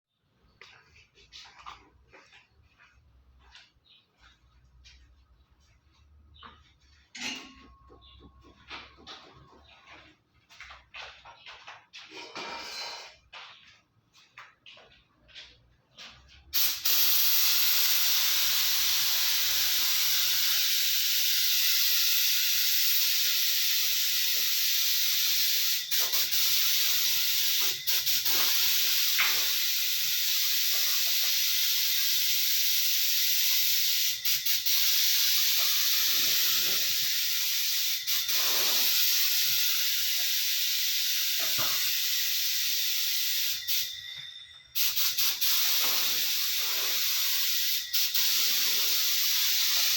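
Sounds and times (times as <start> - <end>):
paint spray gun hissing: 16.6 - 44.2, 44.8 - 49.9.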